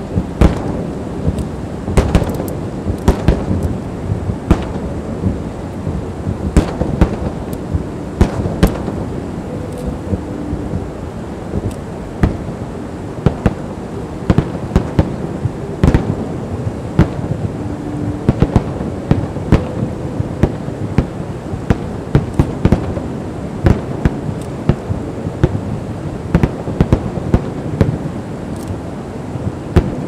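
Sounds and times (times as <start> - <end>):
fireworks bangs: 0.0 - 12.6, 13.2 - 25.7, 26.3 - 28.1
steady rumble: 0.0 - 30.0.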